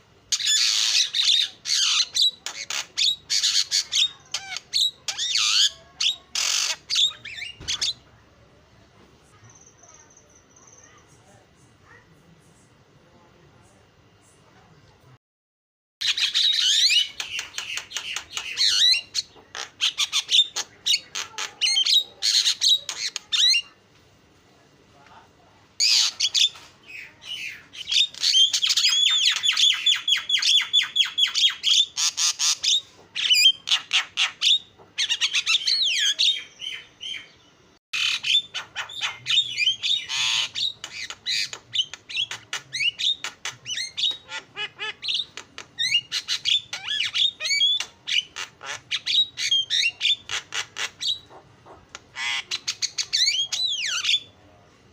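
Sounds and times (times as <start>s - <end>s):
bird chattering and squawking: 0.2s - 8.1s, 16.0s - 23.8s, 25.8s - 37.4s, 38.0s - 54.4s.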